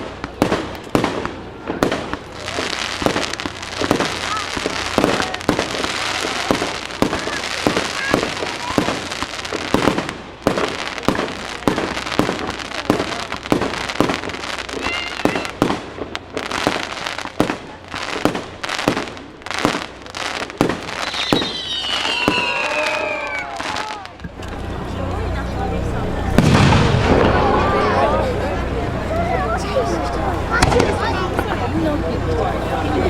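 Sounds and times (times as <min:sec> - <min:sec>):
fireworks bangs and crackles: 0:00.0 - 0:33.0
firework whistles falling in pitch: 0:20.9 - 0:24.0.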